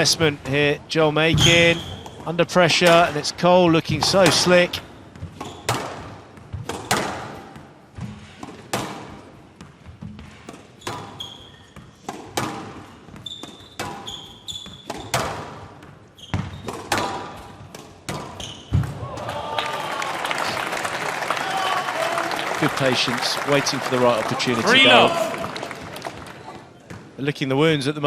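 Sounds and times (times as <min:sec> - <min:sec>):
shoes squeaking on court: 0:01.3 - 0:02.3, 0:04.2 - 0:19.0
squash ball hits: 0:03.9 - 0:11.2, 0:11.8 - 0:14.1, 0:14.7 - 0:19.4.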